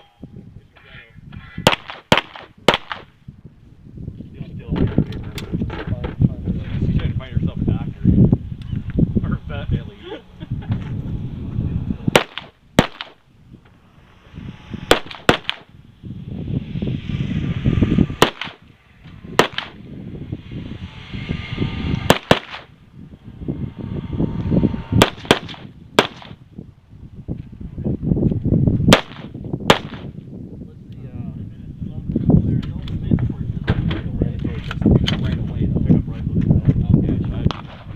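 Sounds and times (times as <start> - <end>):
rumbling rustling noise: 1.2 - 30.6
gunshots: 1.6 - 3.1, 12.1 - 13.2, 14.9 - 15.7, 18.2 - 18.6, 19.4 - 19.8, 22.1 - 22.7, 25.0 - 26.4, 28.9 - 30.1.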